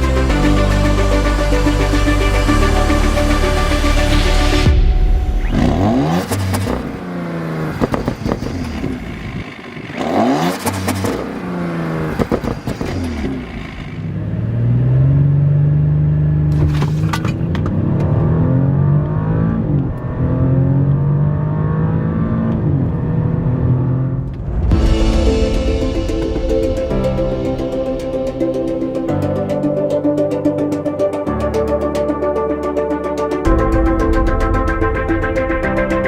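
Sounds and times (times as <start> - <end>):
car engine revving: 0.0 - 29.2
exhaust crackles: 0.0 - 29.2.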